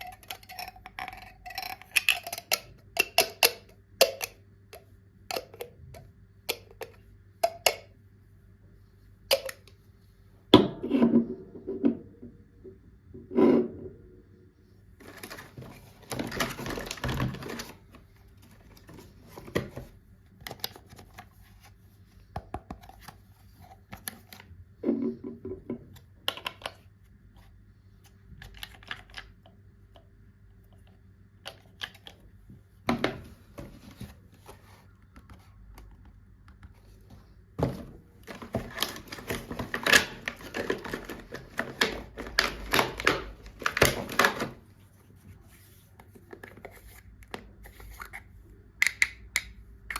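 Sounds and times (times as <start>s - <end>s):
plastic toys clicking and tapping: 0.0s - 7.9s.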